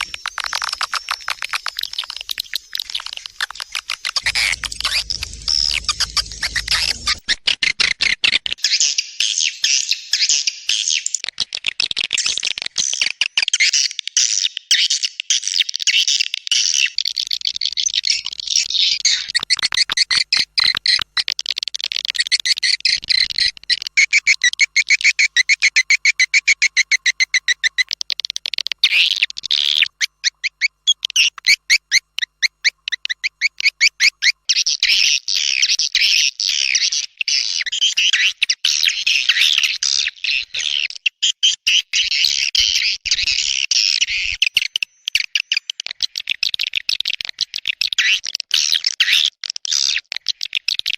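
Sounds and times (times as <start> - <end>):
rapid clicking pulses: 3.3 - 7.3
swiftlets twittering: 4.2 - 7.2.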